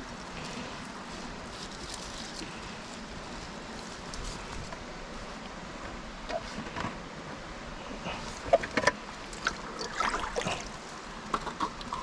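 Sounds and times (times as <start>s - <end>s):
mountain stream running: 9.1s - 12.0s
water splashing: 9.3s - 10.8s.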